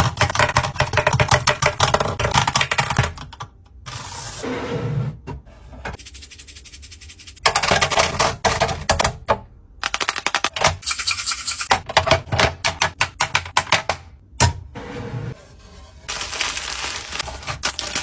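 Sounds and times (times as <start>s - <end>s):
containers clicking and clattering: 16.1s - 18.0s.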